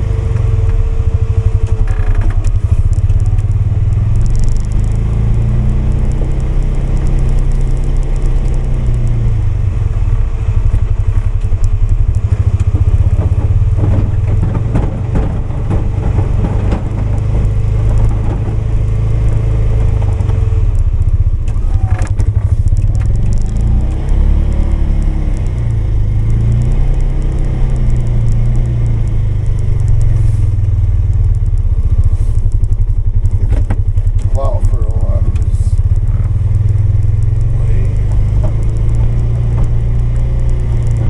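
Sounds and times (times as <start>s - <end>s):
atv engine running: 0.0s - 41.0s.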